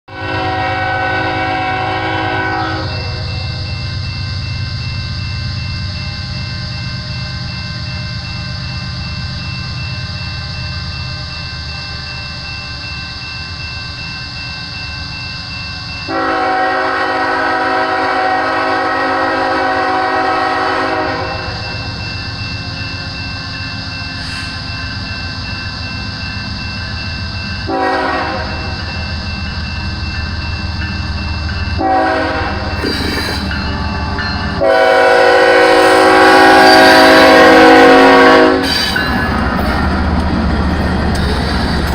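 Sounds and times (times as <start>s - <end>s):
train air horn blasts: 0.1s - 3.2s, 16.1s - 21.6s, 27.7s - 28.6s, 31.8s - 33.6s, 34.6s - 38.8s
freight train rumbling: 0.1s - 41.9s.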